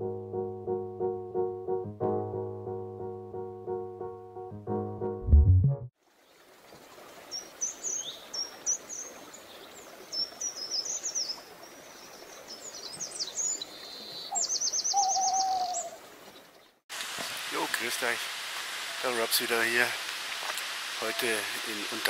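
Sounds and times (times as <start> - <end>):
piano phrase: 0.0 - 5.9
steady outdoor hiss: 6.0 - 22.0
songbirds chirping: 6.1 - 16.8.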